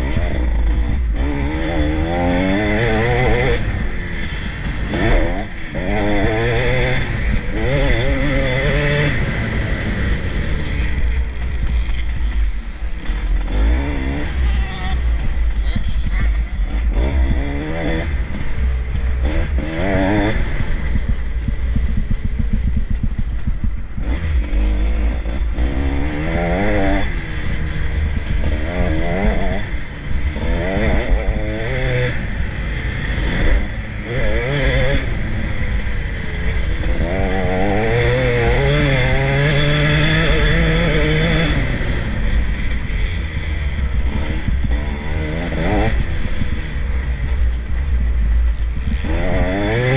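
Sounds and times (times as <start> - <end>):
low rumble: 0.0 - 49.9
motocross engines revving: 0.0 - 49.9.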